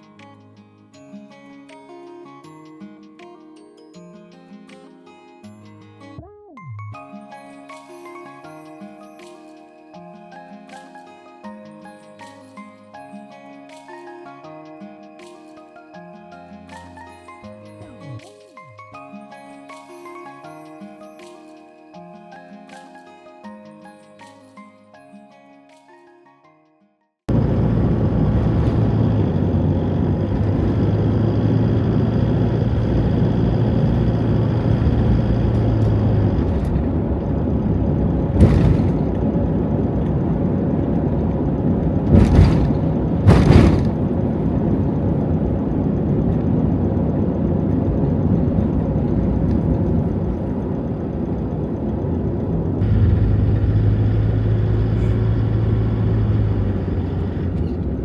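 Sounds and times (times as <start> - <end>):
short thumps: 27.3 - 40.2, 41.9 - 44.9
van engine and road noise: 27.3 - 58.0.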